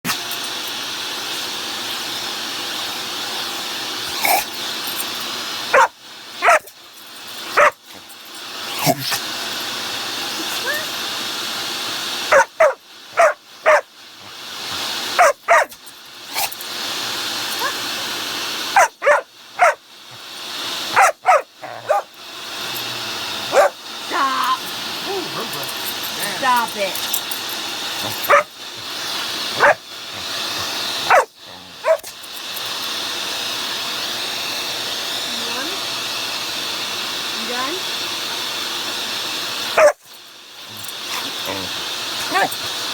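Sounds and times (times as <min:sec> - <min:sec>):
vacuum cleaner running: 0:00.1 - 0:42.9
puppy barking: 0:05.7 - 0:06.7, 0:07.5 - 0:07.8, 0:12.3 - 0:13.9, 0:15.2 - 0:15.8, 0:18.8 - 0:19.8, 0:20.9 - 0:22.1, 0:23.5 - 0:23.8, 0:28.0 - 0:28.5, 0:29.6 - 0:29.8, 0:31.1 - 0:32.1, 0:39.8 - 0:40.0, 0:42.2 - 0:42.6.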